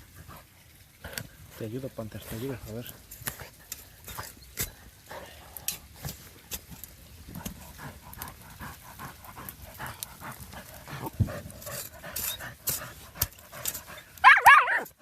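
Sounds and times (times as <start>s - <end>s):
dirt scraping and knocking: 1.0s - 4.9s, 5.6s - 8.0s
dog panting: 7.4s - 14.2s.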